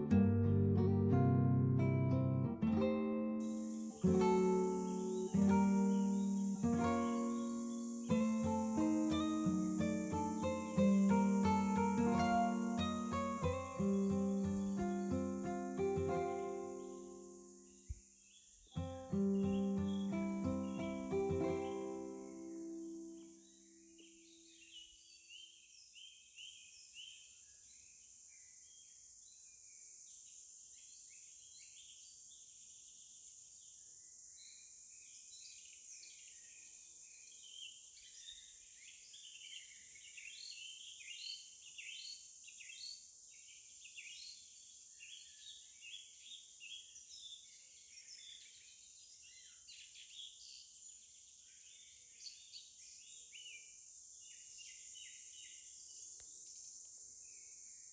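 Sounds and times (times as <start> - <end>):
high-pitched hiss: 0.0 - 26.4
small birds chirping: 0.0 - 57.9.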